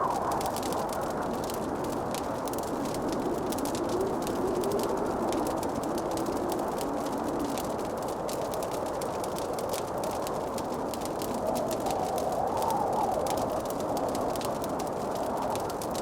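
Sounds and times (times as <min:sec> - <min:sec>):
fireplace crackling: 0:00.0 - 0:16.0.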